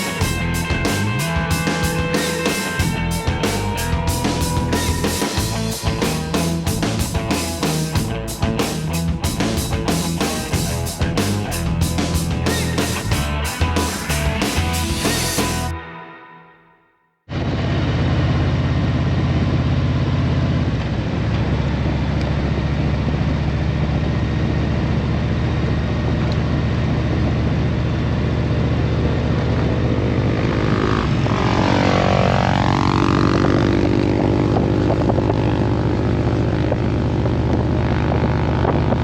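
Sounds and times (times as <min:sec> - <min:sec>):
sound dropping and rising in pitch: 0:00.0 - 0:08.7, 0:29.5 - 0:39.0
vehicle engine running: 0:00.0 - 0:15.7, 0:17.3 - 0:39.0.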